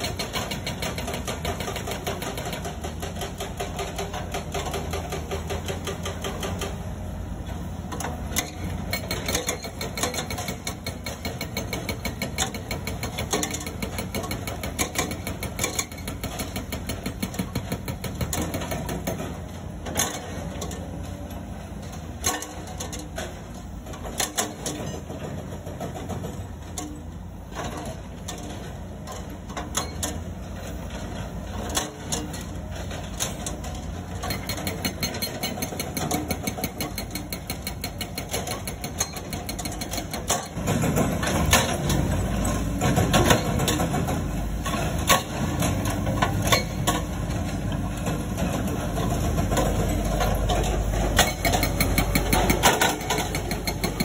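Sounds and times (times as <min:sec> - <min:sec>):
hydraulic breaker hammering stone: 0:00.0 - 0:06.9, 0:07.9 - 0:21.2, 0:31.5 - 0:54.0
excavator diesel engine running: 0:00.0 - 0:54.0.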